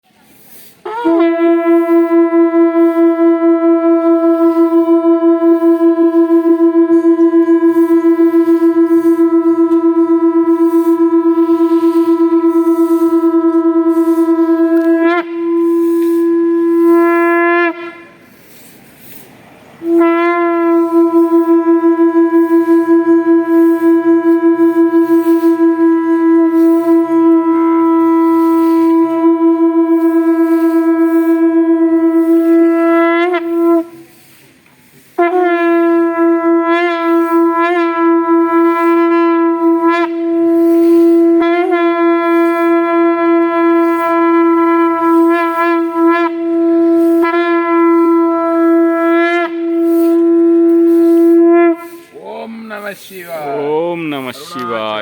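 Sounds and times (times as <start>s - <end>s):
conch shell blasts: 0.6s - 52.9s.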